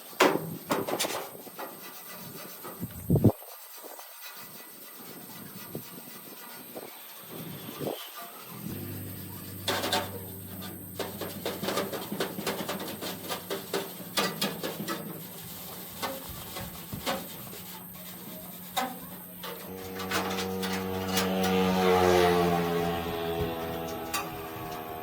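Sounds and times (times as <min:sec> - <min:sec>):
motor humming: 0:08.4 - 0:13.0, 0:19.2 - 0:25.0.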